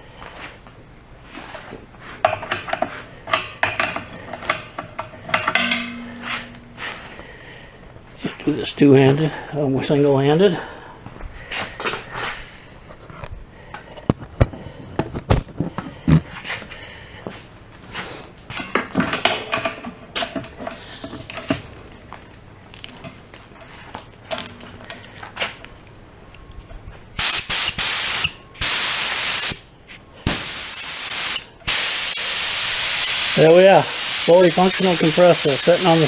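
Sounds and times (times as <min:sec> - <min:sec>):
air hose clicks and rattles: 0:27.2 - 0:36.0
compressed air blasts: 0:27.2 - 0:36.0.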